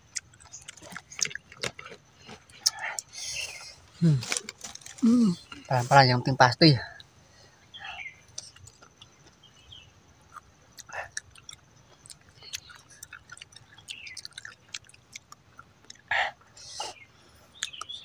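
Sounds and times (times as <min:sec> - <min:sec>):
person chewing: 0:00.0 - 0:05.7, 0:08.3 - 0:09.5, 0:10.2 - 0:18.0
wet mouth clicks and smacks: 0:10.3 - 0:16.1.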